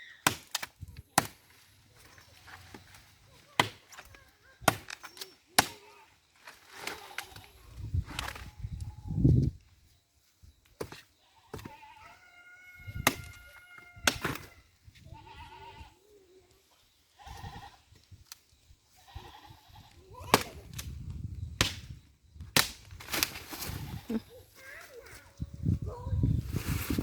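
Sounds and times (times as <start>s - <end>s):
bleating farm animal calls: 11.2s - 16.0s, 19.0s - 20.0s.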